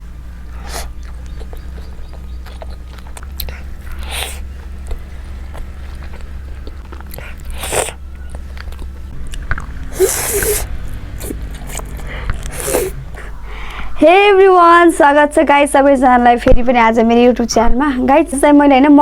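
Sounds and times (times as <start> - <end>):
biting and chewing: 0.0 - 14.0
steady low hum: 0.0 - 19.0.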